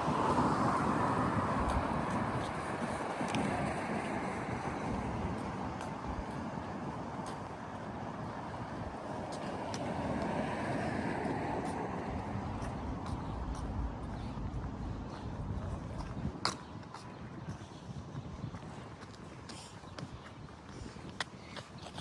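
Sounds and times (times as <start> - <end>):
city street traffic: 0.0 - 17.4.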